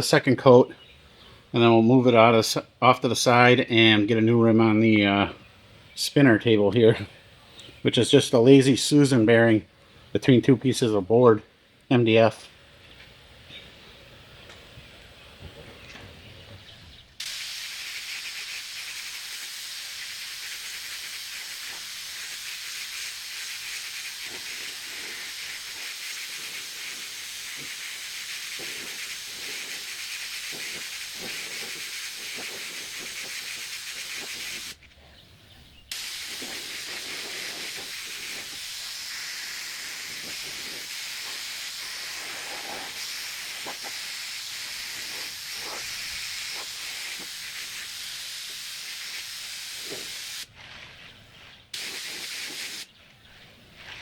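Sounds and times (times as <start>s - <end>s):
paint spray gun hissing: 17.2s - 34.8s, 35.9s - 50.5s, 51.7s - 52.9s.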